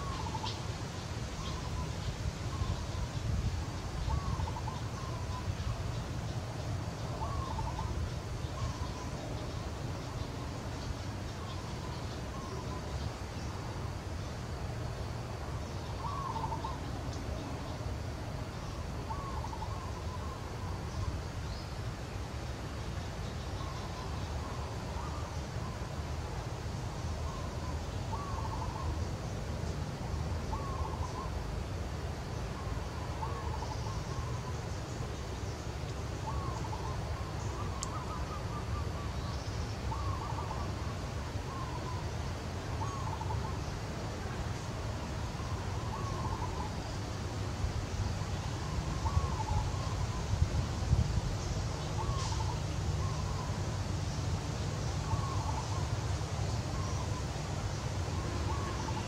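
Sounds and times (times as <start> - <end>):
bird calling: 0.0 - 0.7, 1.3 - 3.3, 4.0 - 6.0, 7.0 - 13.6, 15.6 - 17.8, 18.6 - 21.7, 23.3 - 25.9, 27.2 - 29.2, 30.5 - 31.4, 32.6 - 43.9, 45.2 - 47.0, 48.2 - 50.4, 51.4 - 59.0.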